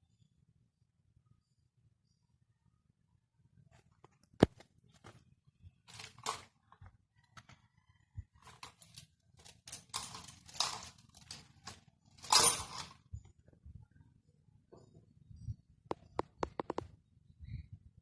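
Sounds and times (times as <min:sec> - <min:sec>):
sharp clicks: 0:15.9 - 0:16.9.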